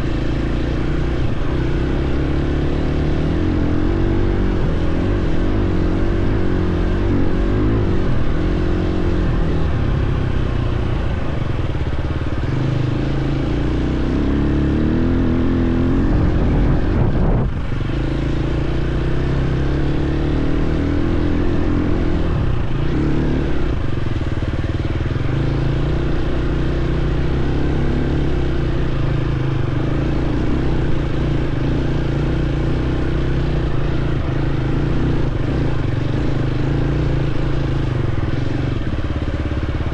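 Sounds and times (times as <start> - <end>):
dirt bike engine revving: 0.0 - 10.2, 12.5 - 24.1.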